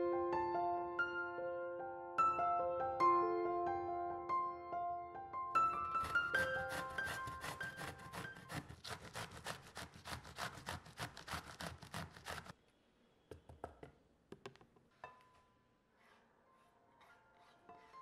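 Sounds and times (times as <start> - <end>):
grating on metal grater: 5.8 - 12.6.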